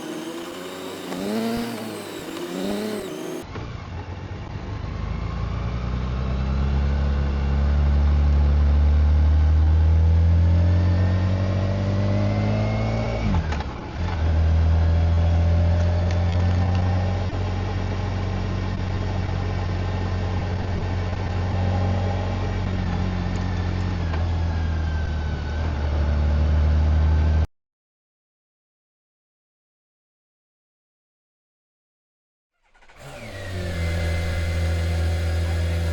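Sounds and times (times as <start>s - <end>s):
motorcycle engine revving: 0.0s - 3.6s, 6.0s - 19.4s, 32.6s - 35.9s.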